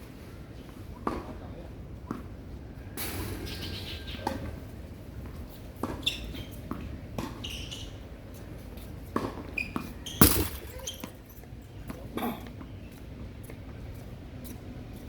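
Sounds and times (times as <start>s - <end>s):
ball bouncing on court: 10.2s - 11.0s.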